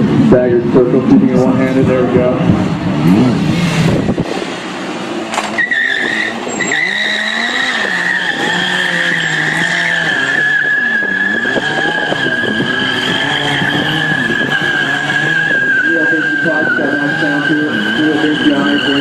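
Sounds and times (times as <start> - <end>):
motorcycle engine revving: 1.5 - 19.0
tyre squealing on pavement: 5.3 - 19.0.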